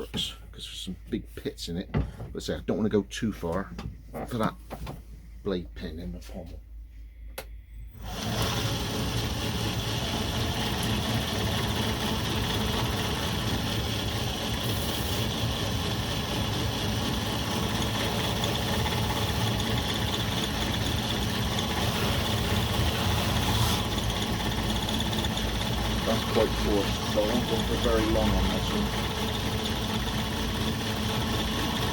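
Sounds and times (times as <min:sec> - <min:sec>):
belt grinder sanding metal: 0:08.0 - 0:31.9.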